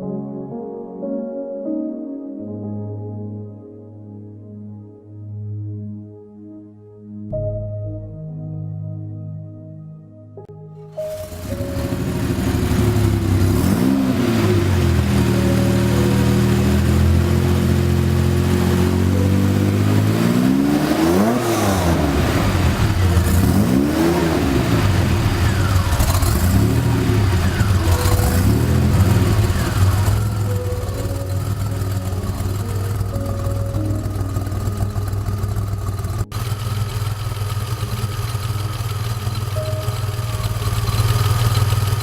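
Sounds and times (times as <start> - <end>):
car engine idling and revving: 11.0 - 42.0.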